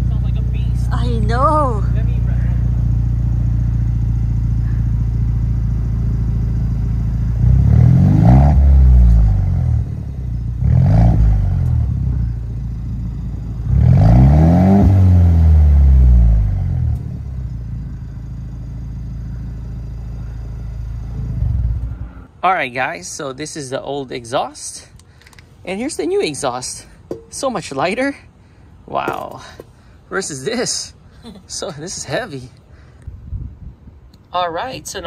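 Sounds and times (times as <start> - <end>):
open exhaust engine idling and revving: 0.0 - 22.4.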